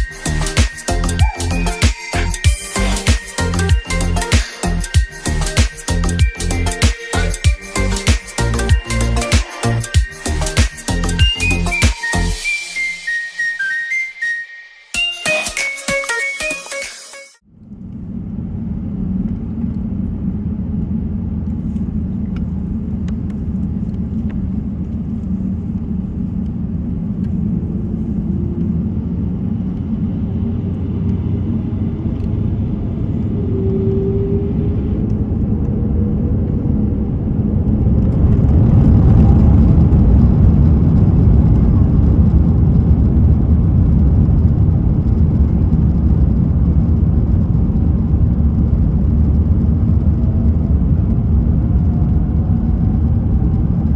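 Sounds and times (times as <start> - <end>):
airplane cabin engine rumble: 17.5 - 53.9.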